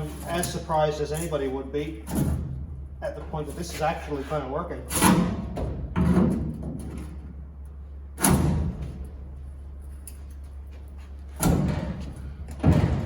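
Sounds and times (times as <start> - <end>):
heavy strikes on sheet metal: 8.2 - 9.0.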